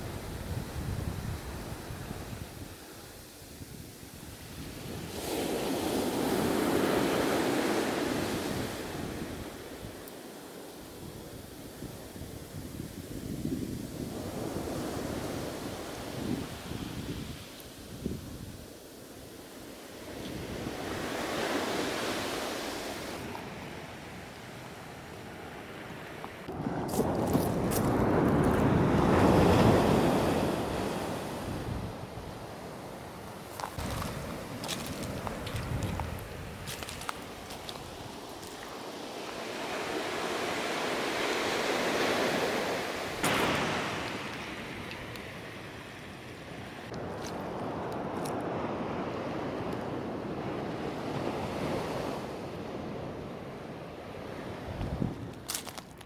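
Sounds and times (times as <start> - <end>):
ocean surf washing up beach: 0.0 - 56.0
wind buffeting microphone: 26.4 - 53.3, 54.2 - 56.0.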